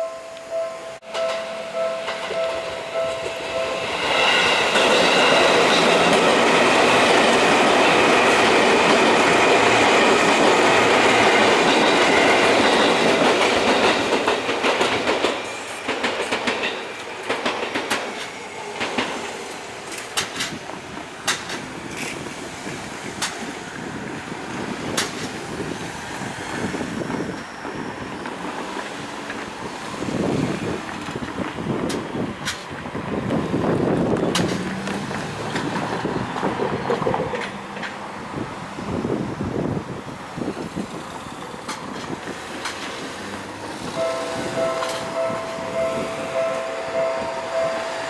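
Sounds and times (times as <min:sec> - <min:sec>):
level-crossing alarm ringing: 0:00.0 - 0:06.8, 0:44.0 - 0:48.0
electric train passing: 0:00.0 - 0:48.0
train wheels clacking over rail joints: 0:02.0 - 0:23.6, 0:24.7 - 0:25.6, 0:26.6 - 0:38.1, 0:40.4 - 0:47.2.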